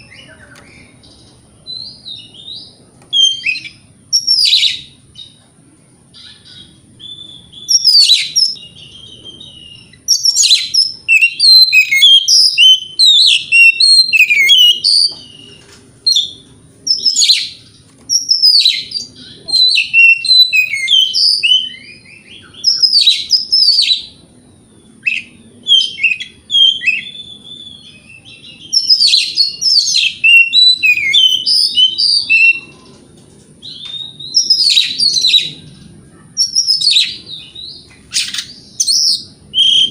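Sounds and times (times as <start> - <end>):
bird singing whistles and trills: 0.0 - 5.4, 6.1 - 33.0, 33.6 - 39.9.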